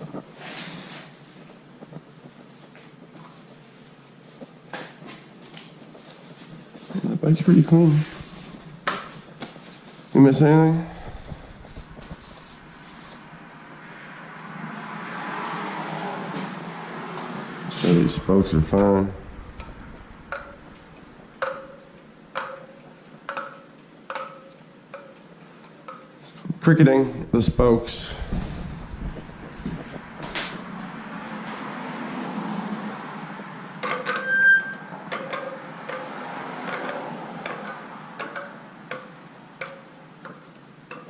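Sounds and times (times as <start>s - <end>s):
bicycle spokes pinging: 19.3s - 26.2s.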